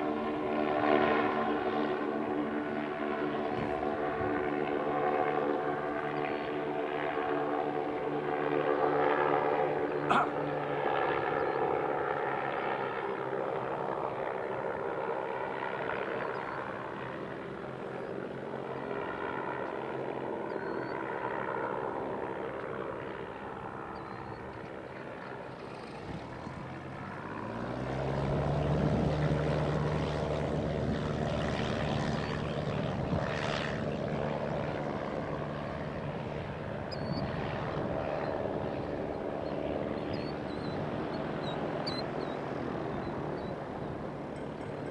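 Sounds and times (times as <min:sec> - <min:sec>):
airship propeller engines droning: 0:25.2 - 0:44.9.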